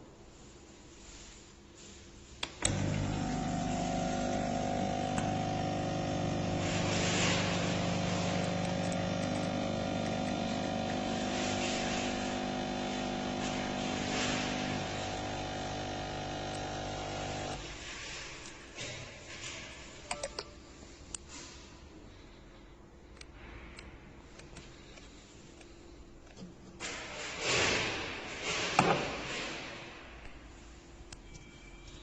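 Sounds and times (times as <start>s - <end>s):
coffee maker pump hum: 2.5s - 17.8s
coffee maker hissing: 2.6s - 17.8s.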